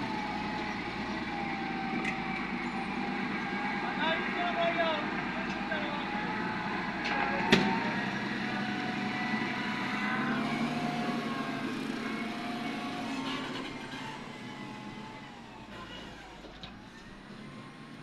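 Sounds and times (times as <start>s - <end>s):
heavy machinery engines running: 0.0s - 18.0s.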